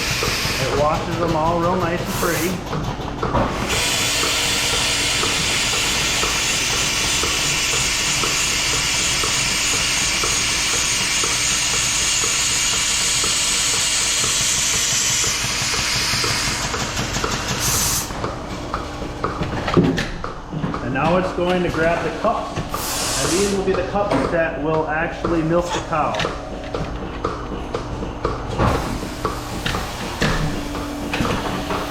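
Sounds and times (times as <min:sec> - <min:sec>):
milking robot spraying hiss: 0:02.1 - 0:02.6, 0:17.5 - 0:18.1, 0:22.0 - 0:23.6.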